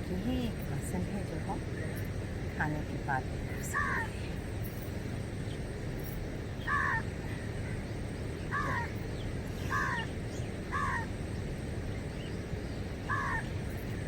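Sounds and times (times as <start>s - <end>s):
low background rush: 0.0s - 14.0s
crow cawing: 6.7s - 7.4s, 8.5s - 9.0s, 9.7s - 10.1s, 10.7s - 11.1s, 13.1s - 13.5s.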